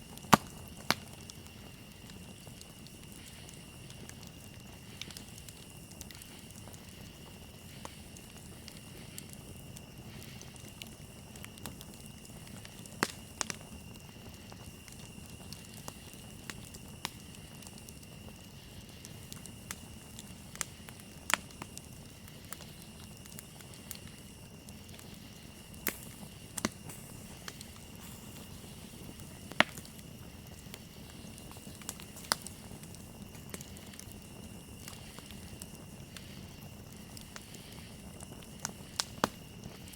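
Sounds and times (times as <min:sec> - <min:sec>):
campfire crackling and popping: 0:00.0 - 0:39.9
crickets chirring: 0:00.0 - 0:39.9.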